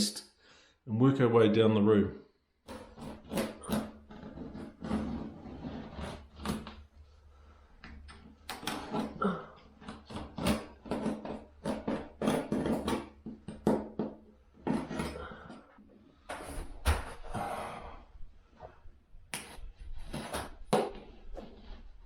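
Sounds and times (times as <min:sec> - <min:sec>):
knocks taps and scrapes of repair: 0:02.6 - 0:06.9, 0:07.8 - 0:17.0.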